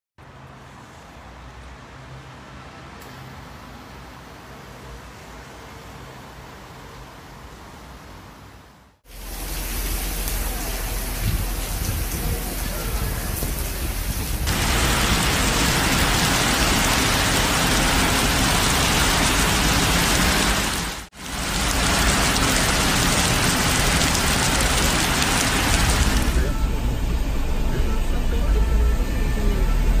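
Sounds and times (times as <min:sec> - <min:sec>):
heavy rain on pavement: 0:09.0 - 0:26.8.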